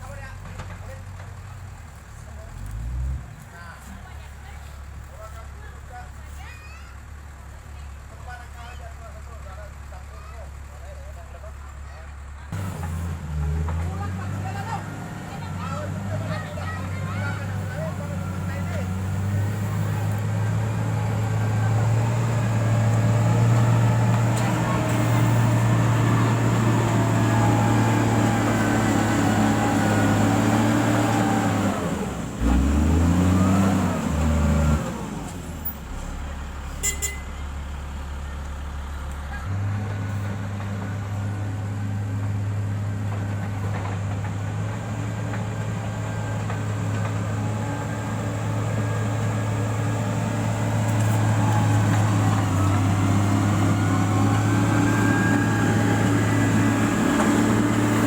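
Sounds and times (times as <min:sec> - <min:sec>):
heavy machine engine running: 0:06.8 - 0:58.0.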